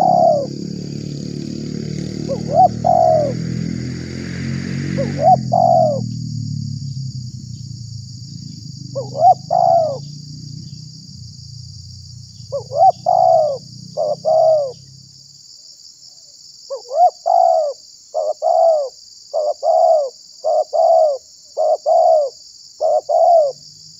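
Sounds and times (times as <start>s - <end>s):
dove cooing: 0.0s - 3.8s, 5.0s - 6.1s, 8.8s - 10.8s, 12.4s - 14.8s, 16.7s - 23.6s
low hum: 0.0s - 15.1s.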